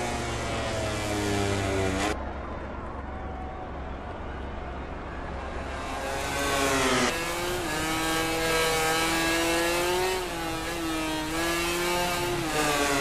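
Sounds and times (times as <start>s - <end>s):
racing motorcycle engine revving: 0.0s - 2.2s, 5.4s - 13.0s.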